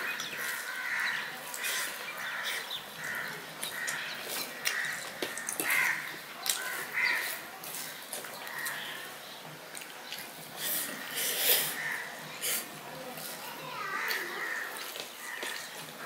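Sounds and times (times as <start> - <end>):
fingers mixing rice on plate: 0.0 - 9.1.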